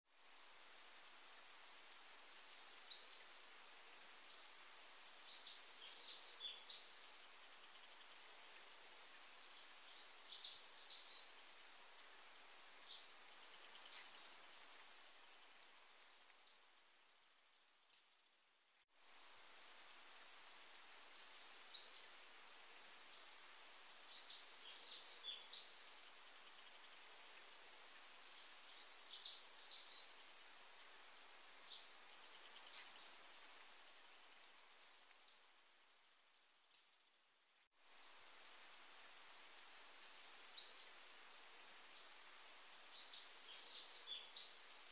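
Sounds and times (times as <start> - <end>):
steady hiss: 0.1 - 44.9
birds chirping and twittering: 0.3 - 16.6, 19.2 - 35.4, 41.8 - 44.9.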